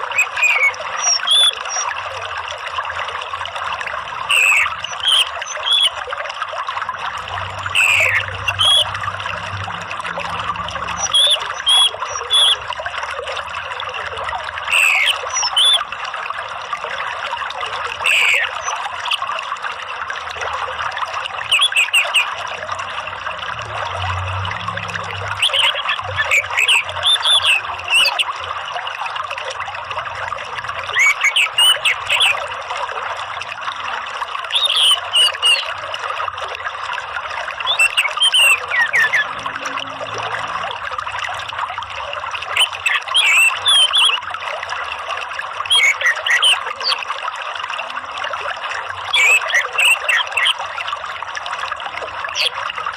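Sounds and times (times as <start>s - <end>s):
water trickling: 0.0s - 52.9s
bird calls and chirps: 0.1s - 1.9s, 4.3s - 6.0s, 7.7s - 8.9s, 14.7s - 15.8s, 18.0s - 18.8s, 21.5s - 22.4s, 25.3s - 28.3s, 30.9s - 32.4s, 34.5s - 35.7s, 37.6s - 39.4s, 42.5s - 44.2s, 45.7s - 47.0s, 49.1s - 50.6s.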